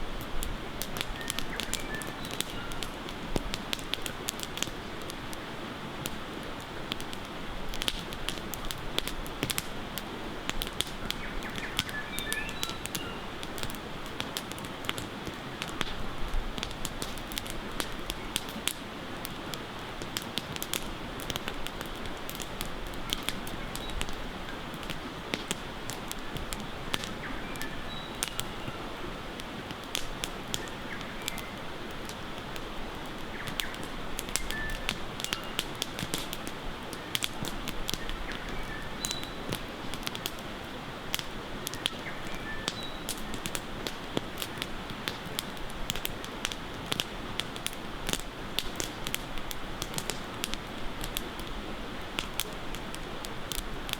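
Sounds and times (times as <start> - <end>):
campfire crackling: 0.0 - 53.9
bird chirps: 11.2 - 13.3, 27.3 - 28.8, 38.3 - 39.5, 42.0 - 43.1.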